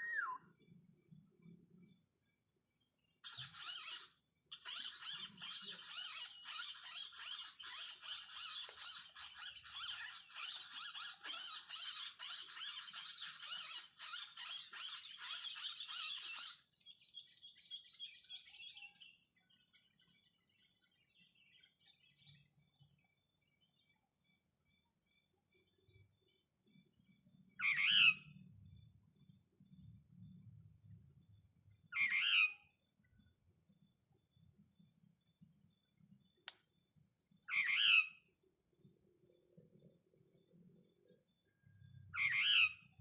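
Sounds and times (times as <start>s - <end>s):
birds chirping and squeaking: 3.2s - 16.7s.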